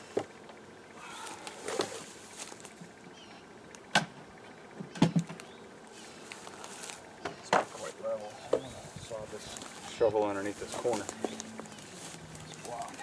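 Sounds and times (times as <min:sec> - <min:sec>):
wooden frames scraping: 0:01.2 - 0:02.8, 0:06.0 - 0:13.0.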